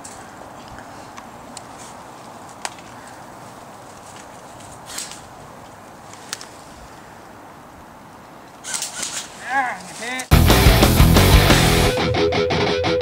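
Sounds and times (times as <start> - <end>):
short rustle: 0.0 - 7.1, 8.6 - 10.3
steady outdoor hiss: 0.0 - 12.0
sharp cracks: 8.5 - 12.0.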